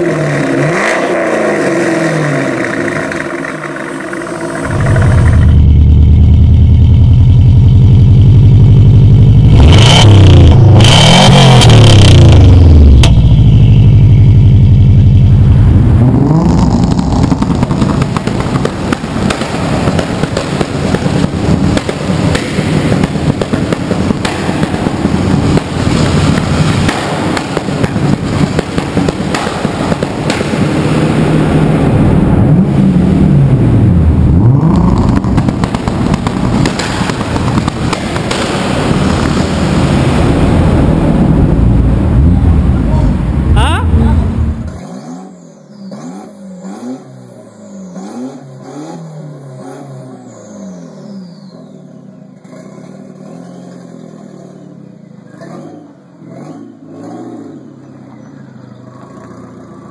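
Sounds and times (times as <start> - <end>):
exhaust bangs and crackles: 0.0 - 51.0
turbo car engine revving: 0.0 - 59.9.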